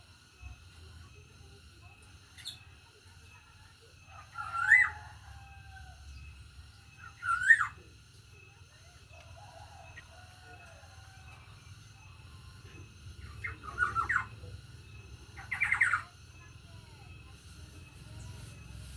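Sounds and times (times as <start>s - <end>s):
bird fluty whistled calls: 7.0s - 7.8s.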